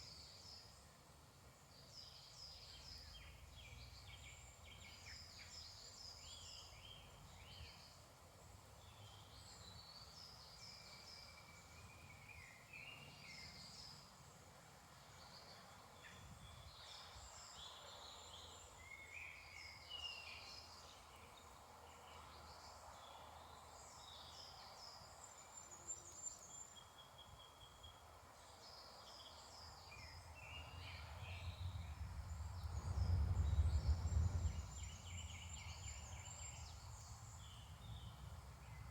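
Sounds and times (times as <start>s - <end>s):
birds singing and calling: 28.7s - 38.9s
low rumble: 31.2s - 38.2s.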